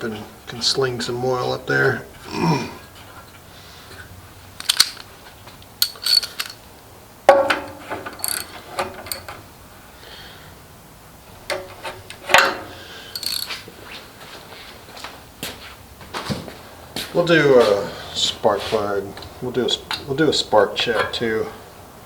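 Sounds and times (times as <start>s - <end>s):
socket wrench ratcheting: 4.6s - 5.1s, 5.8s - 6.6s, 8.1s - 9.3s, 12.3s - 13.6s
metal hand tools clinking: 4.6s - 5.2s, 5.8s - 6.7s, 7.3s - 9.4s, 11.6s - 13.6s.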